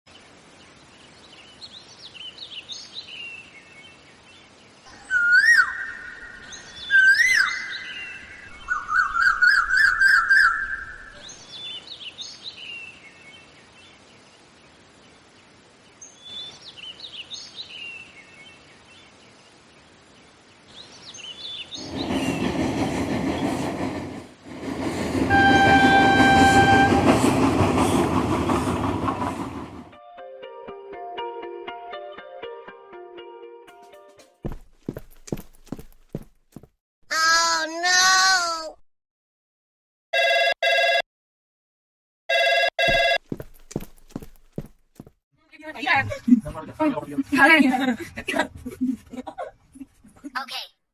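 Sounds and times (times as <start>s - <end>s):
birds chirping: 20.3s - 23.9s
train rumbling past: 21.8s - 30.0s
train horn: 25.3s - 27.3s.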